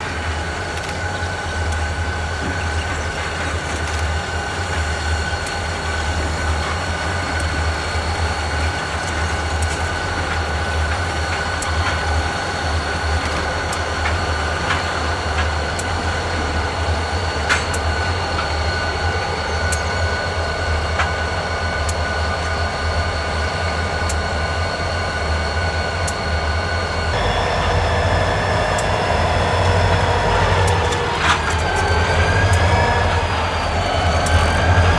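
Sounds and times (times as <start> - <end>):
wheels clicking on track: 0.0 - 20.2, 27.1 - 34.9
diesel locomotives rumbling: 0.0 - 34.9
high whining tones: 23.9 - 34.9.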